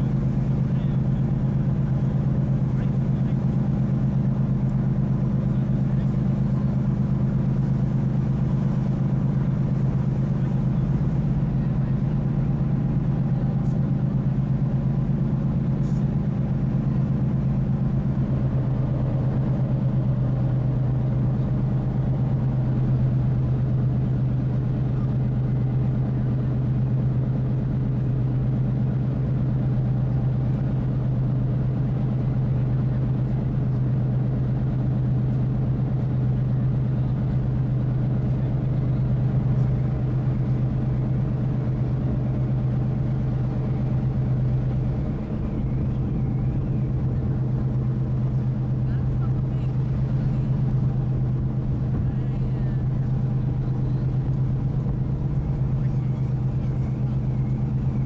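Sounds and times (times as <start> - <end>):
ship engine drone: 0.0 - 58.0.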